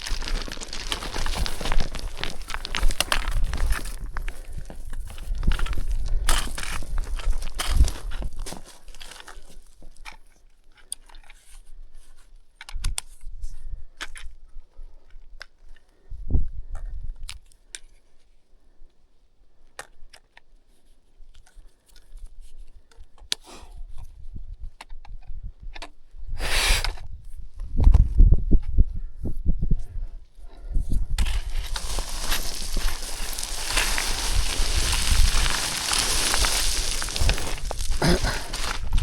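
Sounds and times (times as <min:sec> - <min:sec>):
stones sliding rush: 0:00.0 - 0:10.0, 0:31.1 - 0:39.0
footsteps on loose stones: 0:00.0 - 0:10.1, 0:31.1 - 0:39.0.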